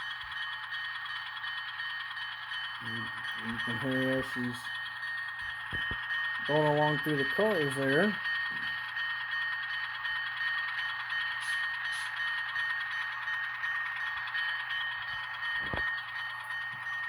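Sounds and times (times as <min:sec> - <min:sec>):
diesel engine sound from small speaker: 0:02.8 - 0:08.9, 0:10.9 - 0:16.8.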